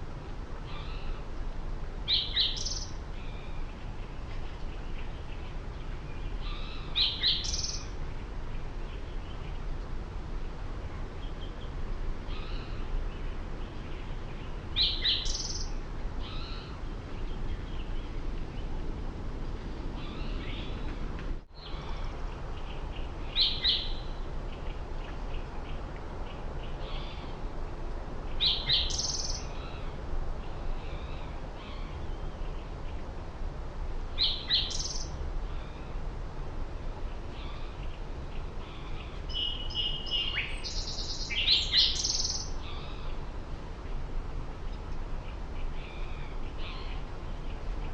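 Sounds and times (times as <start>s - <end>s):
low background rumble: 0.0s - 47.9s
faint bird chirps: 4.4s - 7.9s.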